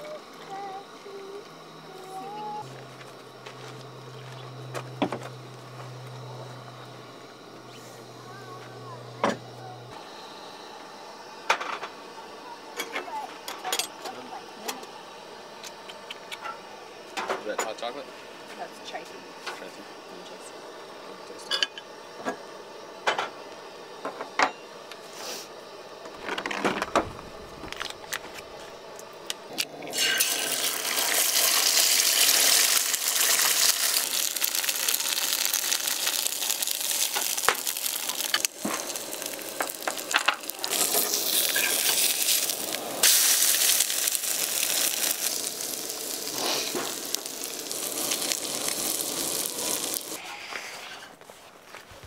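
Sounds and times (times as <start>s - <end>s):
food sizzling in a skillet: 25.0s - 25.5s, 29.9s - 50.8s.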